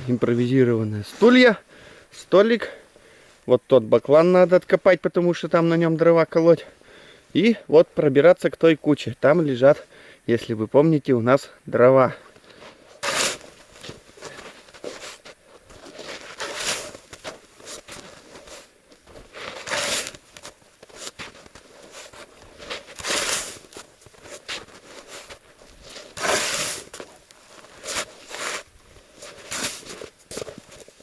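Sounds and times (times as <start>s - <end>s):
crunching snow: 12.5s - 31.0s
snow shovel scraping through snow: 12.9s - 15.2s, 15.8s - 31.0s.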